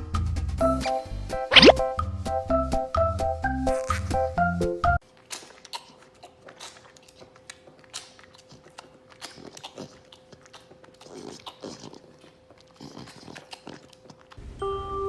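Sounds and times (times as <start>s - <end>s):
pet chewing and crunching: 5.0s - 14.5s.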